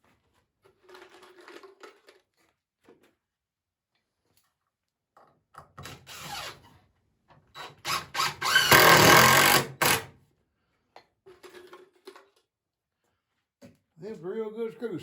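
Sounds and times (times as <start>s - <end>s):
power drill driving screw into wood: 5.8s - 6.6s, 7.6s - 10.2s.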